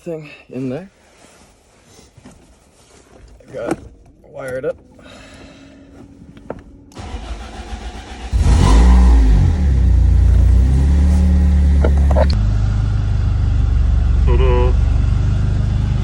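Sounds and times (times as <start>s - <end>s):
car engine revving and idling: 5.9s - 16.0s
car starter cranking: 6.9s - 12.4s.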